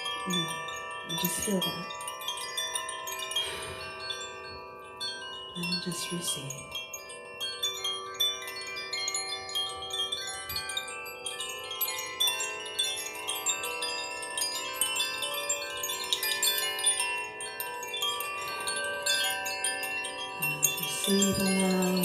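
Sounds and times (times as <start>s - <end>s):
chimes ringing: 0.0s - 22.0s.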